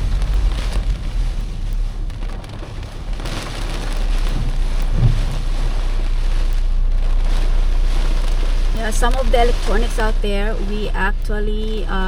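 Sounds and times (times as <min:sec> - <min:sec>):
rain hitting a car: 0:00.0 - 0:12.0
road rumble: 0:00.0 - 0:12.0.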